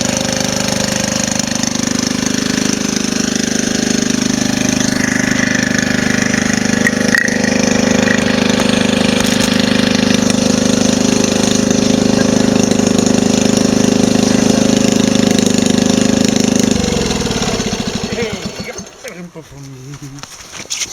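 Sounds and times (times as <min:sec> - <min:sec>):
engine winding down: 0:00.0 - 0:19.4
engine running: 0:00.0 - 0:20.3.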